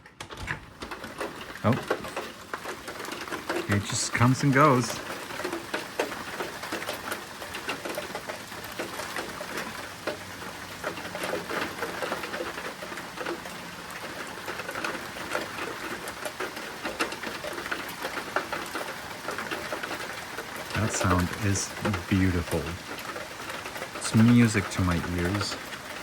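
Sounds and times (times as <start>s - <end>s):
raindrops pattering on surfaces: 0.0s - 26.0s
rain hissing: 0.8s - 26.0s.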